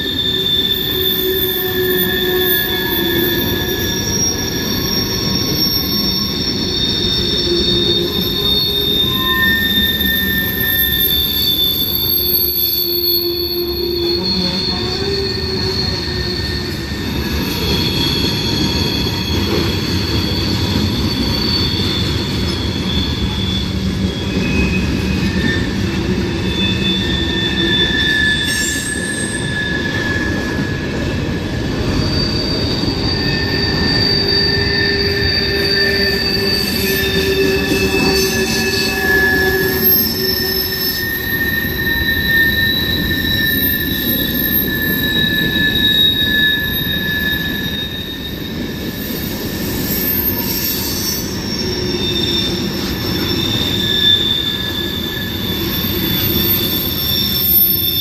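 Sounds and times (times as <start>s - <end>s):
freight train wheels rumbling: 0.0s - 58.0s
train wheel squeals: 0.0s - 58.0s.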